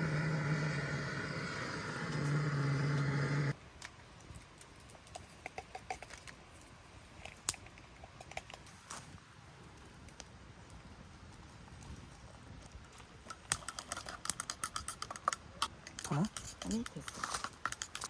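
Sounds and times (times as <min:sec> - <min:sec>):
small appliance motor humming: 0:00.0 - 0:03.6.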